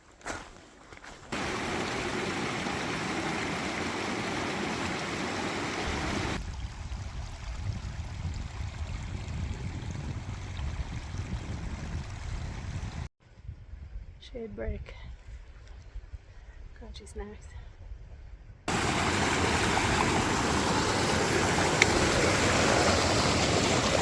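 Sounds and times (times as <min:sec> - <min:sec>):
mountain stream rushing: 0:01.3 - 0:06.4, 0:18.7 - 0:24.0.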